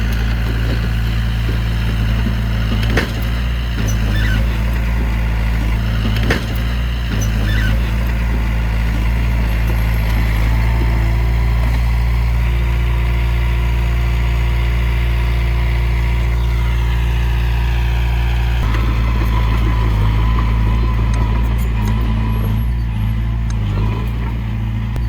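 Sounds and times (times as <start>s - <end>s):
heavy diesel engine droning: 0.0s - 25.0s.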